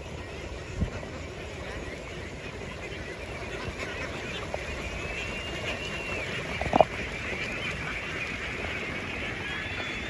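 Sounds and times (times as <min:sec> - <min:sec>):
flock of ducks quacking: 0:00.0 - 0:10.0.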